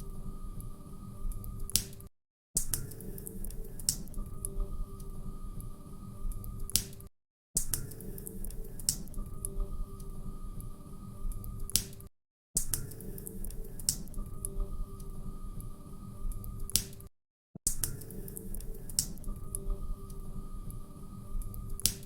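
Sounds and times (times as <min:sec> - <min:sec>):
faint steady hum: 0:00.0 - 0:01.7, 0:03.0 - 0:06.7, 0:08.0 - 0:11.7, 0:13.0 - 0:16.7, 0:18.1 - 0:22.0.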